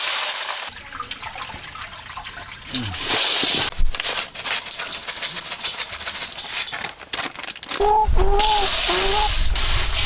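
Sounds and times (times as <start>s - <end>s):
snail shells clattering in a basin: 4.1s - 7.9s.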